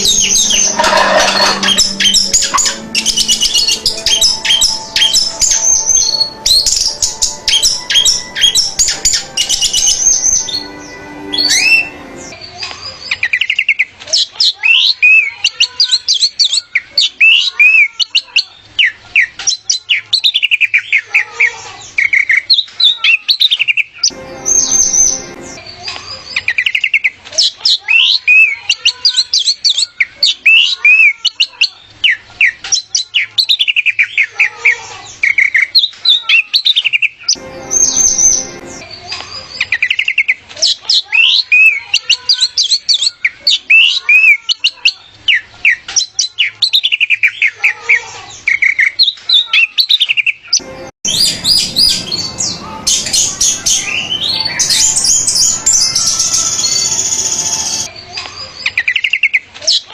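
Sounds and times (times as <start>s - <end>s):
thrush singing: 0.0s - 12.4s, 24.1s - 25.8s, 37.4s - 39.1s, 50.6s - 57.9s
busy bird chirping: 0.0s - 59.9s.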